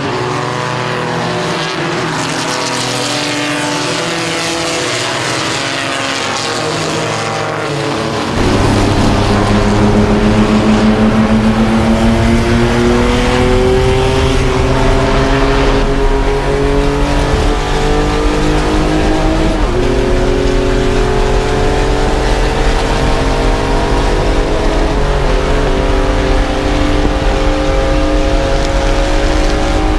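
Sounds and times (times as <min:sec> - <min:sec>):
race car engine revving: 0:00.0 - 0:29.9.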